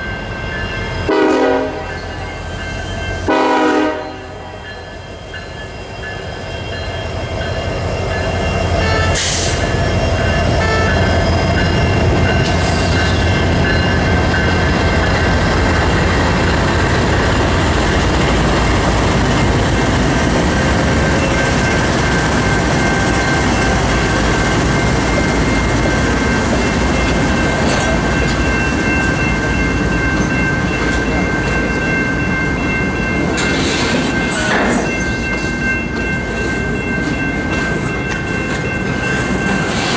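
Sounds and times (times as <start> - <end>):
diesel train deep rumble: 0.0 - 39.9.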